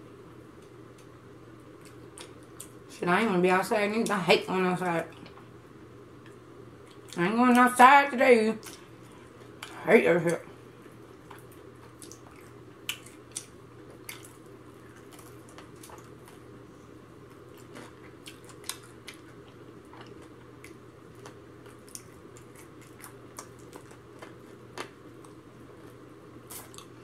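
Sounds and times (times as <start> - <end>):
low room hum: 0.0 - 27.0
wet chewing and smacking: 1.7 - 2.8, 6.2 - 7.6, 10.9 - 16.5, 17.2 - 27.0.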